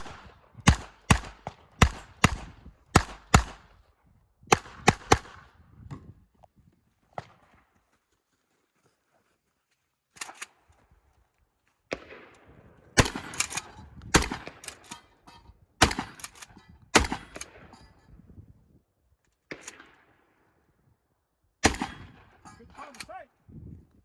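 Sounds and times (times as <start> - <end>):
pistol shots echoing: 0.0 - 3.7, 11.9 - 14.8, 15.8 - 16.3, 16.9 - 17.7, 21.6 - 22.4.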